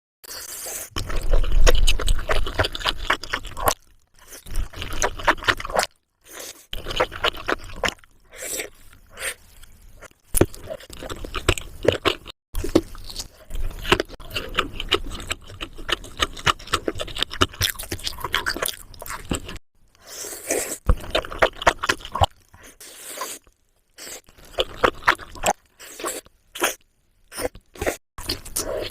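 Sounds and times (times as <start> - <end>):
wet chewing and crunching: 0.3 - 28.9.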